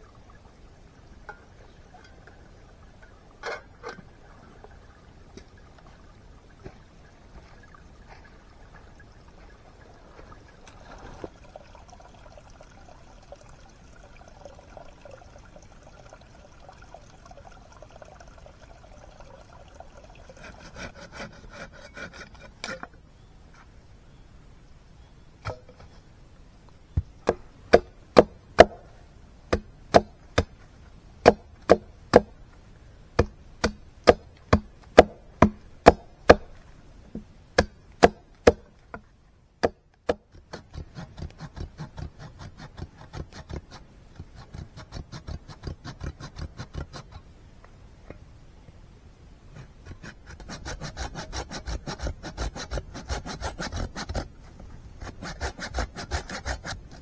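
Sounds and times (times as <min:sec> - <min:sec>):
hand saw sawing wood: 0:20.4 - 0:22.6, 0:40.4 - 0:47.2, 0:49.6 - 0:57.0.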